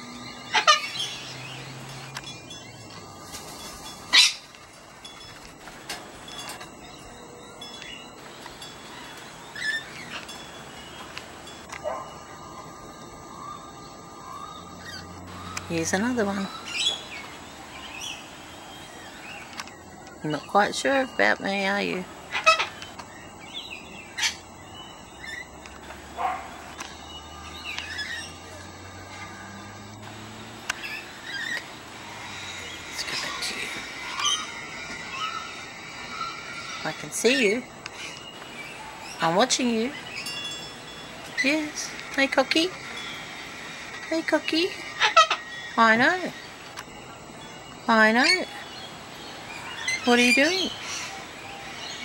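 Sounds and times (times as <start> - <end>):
cockatoo calling: 0.0 - 1.9, 4.0 - 4.6, 22.0 - 52.0
faint ringing tones: 0.0 - 52.0
cockatoo screeching: 0.5 - 1.3, 4.1 - 4.5, 22.3 - 22.8, 30.8 - 37.7, 42.7 - 46.2.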